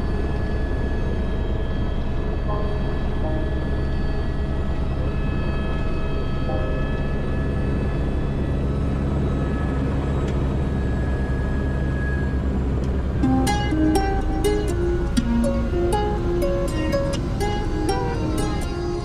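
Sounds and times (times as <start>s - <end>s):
helicopter low drone: 0.0s - 19.0s
high whining tones: 0.0s - 19.0s
plucked-string music: 2.5s - 5.2s, 12.9s - 19.0s.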